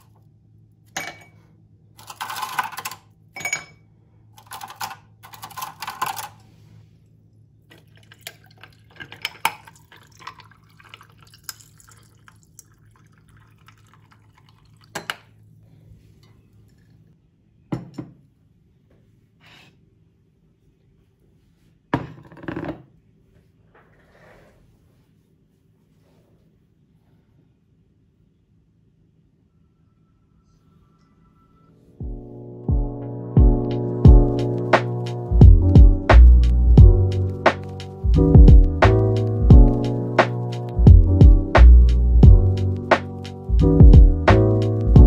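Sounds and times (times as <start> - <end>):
objects clinking and rustling: 2.0 - 3.8, 4.4 - 6.5.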